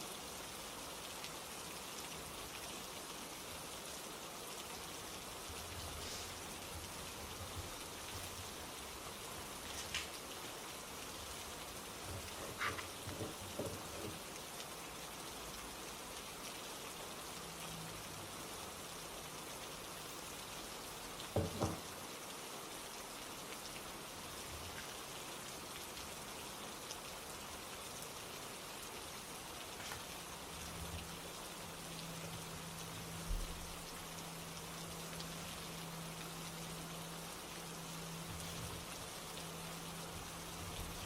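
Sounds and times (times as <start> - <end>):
steady rain: 0.0 - 41.0.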